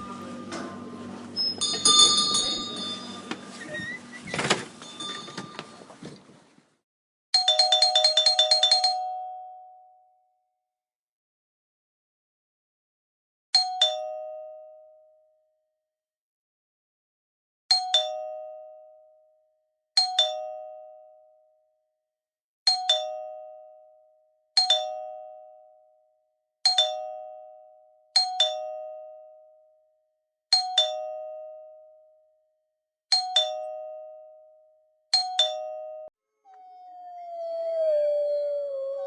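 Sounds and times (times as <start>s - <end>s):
two-note doorbell chime: 1.4s - 3.6s, 4.8s - 5.8s.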